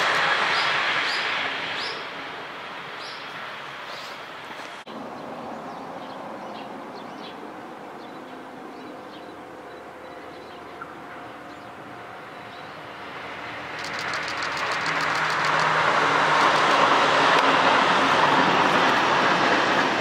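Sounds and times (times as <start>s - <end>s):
outdoor noise: 0.0s - 20.0s
railcar approaching: 0.0s - 20.0s.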